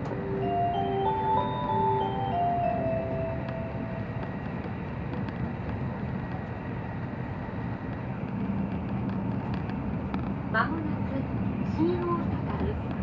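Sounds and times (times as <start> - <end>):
short tune: 0.0 - 4.2
train running noise in cabin: 0.0 - 13.0.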